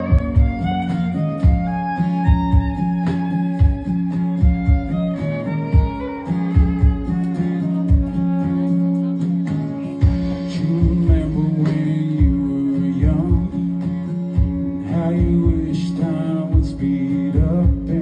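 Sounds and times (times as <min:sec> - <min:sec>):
kick drum: 0:00.0 - 0:00.8, 0:01.4 - 0:03.0, 0:03.6 - 0:05.2, 0:05.8 - 0:08.3, 0:10.0 - 0:11.4, 0:12.2 - 0:13.6, 0:14.4 - 0:15.8, 0:16.6 - 0:18.0
bass notes: 0:00.0 - 0:09.4, 0:10.0 - 0:18.0
strummed guitar: 0:00.0 - 0:18.0.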